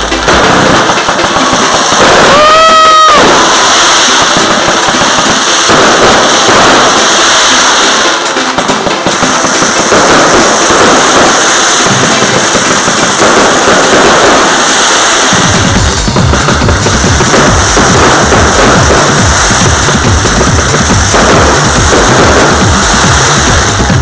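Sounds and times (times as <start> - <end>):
fireworks crackling: 0.0 - 24.0
music playing: 0.0 - 24.0
heavy bass beat: 15.3 - 24.0.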